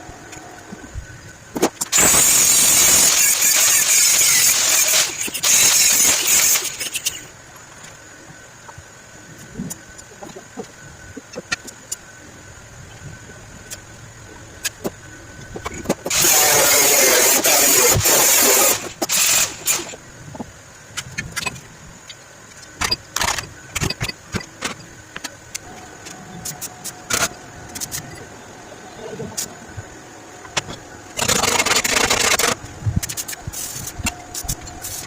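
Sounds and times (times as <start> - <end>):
loud burst of hissing: 1.9 - 7.3, 16.1 - 20.0, 31.2 - 35.0.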